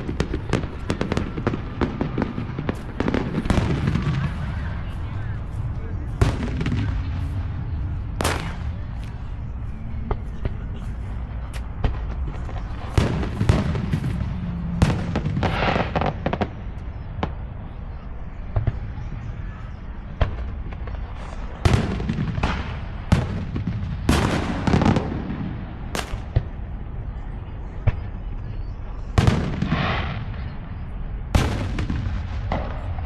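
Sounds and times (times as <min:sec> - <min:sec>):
fireworks crackling: 0:00.0 - 0:17.6, 0:20.2 - 0:26.6
fireworks bangs: 0:00.0 - 0:26.8, 0:29.0 - 0:33.0.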